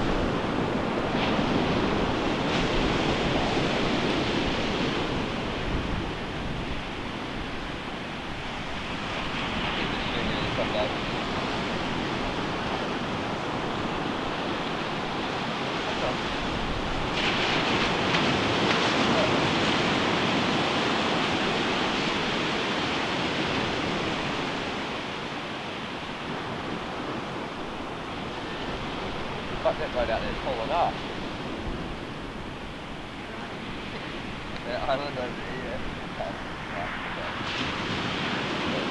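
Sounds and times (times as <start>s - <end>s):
ocean surf on beach: 0.0s - 38.9s
wave breaking: 8.5s - 23.8s, 33.2s - 38.9s.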